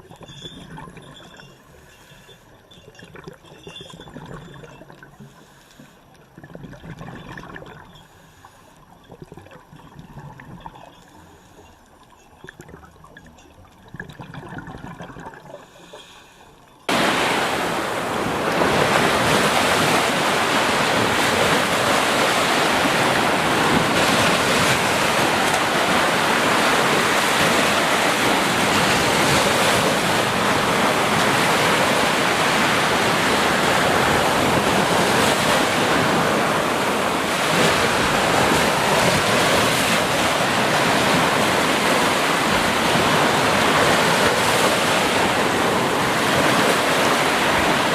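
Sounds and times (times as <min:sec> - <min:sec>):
soft uneven water sounds: 0:00.0 - 0:47.9
surf rushing: 0:16.9 - 0:47.9.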